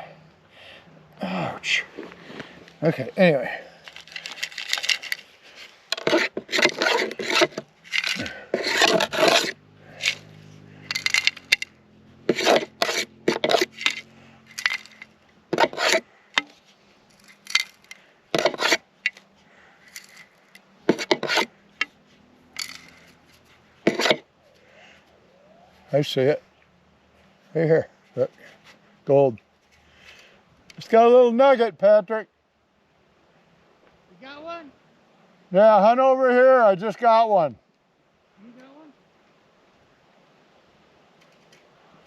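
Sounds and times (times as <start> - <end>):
digging tool scraping gravelly dirt: 1.6 - 24.3.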